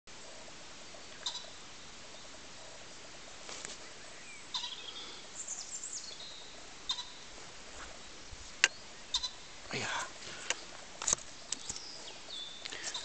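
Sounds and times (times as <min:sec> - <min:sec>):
steady hiss: 0:00.1 - 0:13.0
high bird chirps: 0:04.2 - 0:07.2, 0:08.6 - 0:09.4
faint clicks: 0:10.4 - 0:11.9.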